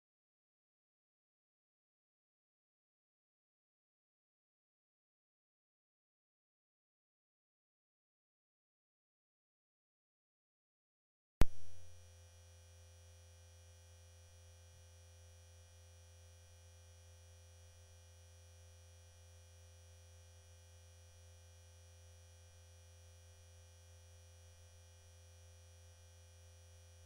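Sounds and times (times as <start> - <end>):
sharp thump: 11.4 - 11.8
low electronic hum: 11.4 - 12.3.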